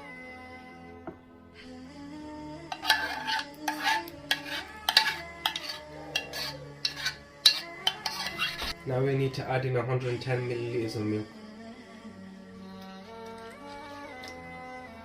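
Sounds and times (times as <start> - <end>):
soft background music: 0.0 - 15.0
utensil scraping a bowl: 2.7 - 8.8.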